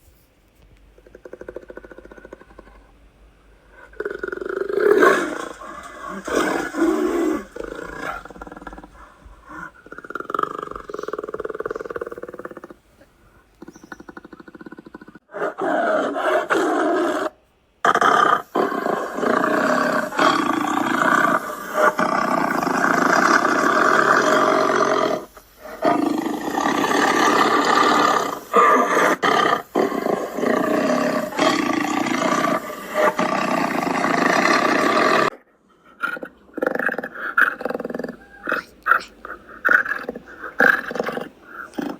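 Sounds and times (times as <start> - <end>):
big cat roaring and growling: 3.9 - 12.8, 17.9 - 35.3.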